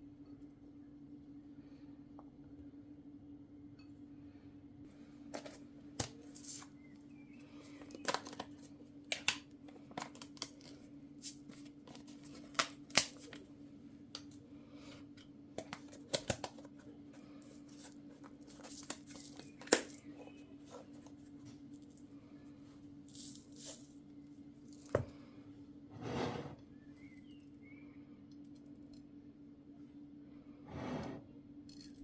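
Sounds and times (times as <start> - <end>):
steady low hum: 0.0 - 8.0, 8.6 - 16.0.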